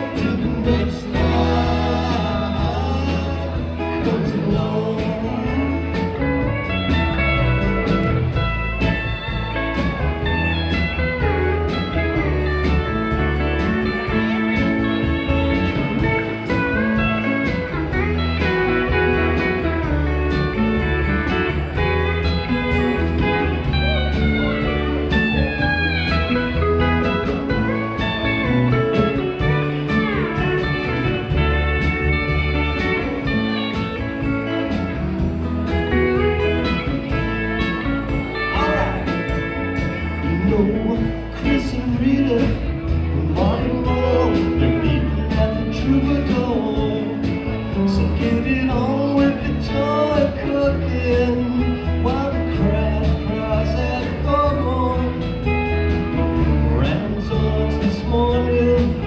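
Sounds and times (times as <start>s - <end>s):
bass guitar: 0.0s - 59.0s
lead guitar: 0.0s - 59.0s
slide guitar gliding notes: 0.0s - 59.0s.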